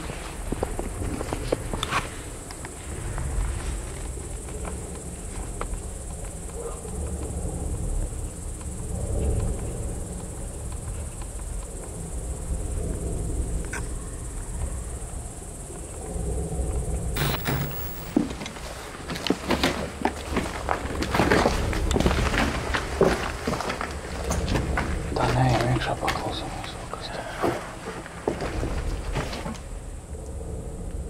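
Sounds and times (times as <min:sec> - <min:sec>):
crickets chirping: 0:00.0 - 0:31.0
scattered clicks: 0:17.2 - 0:18.2.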